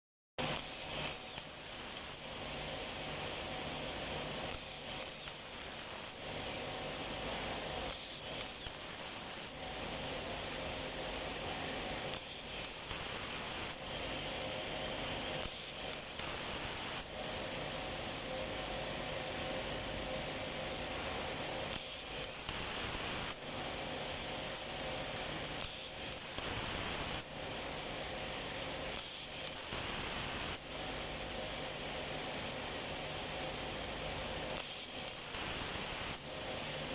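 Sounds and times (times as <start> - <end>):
pneumatic cable tie gun: 0.4 - 3.1, 3.7 - 11.2, 12.0 - 17.3, 19.8 - 24.8, 25.4 - 32.0, 33.8 - 36.9
compressed air hiss: 19.8 - 32.0.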